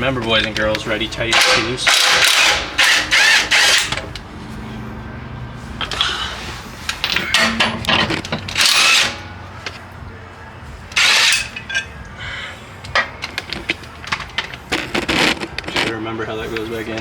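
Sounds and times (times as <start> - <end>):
power tool bursts loosening bolt: 1.3 - 4.1, 7.3 - 9.3, 10.9 - 11.6.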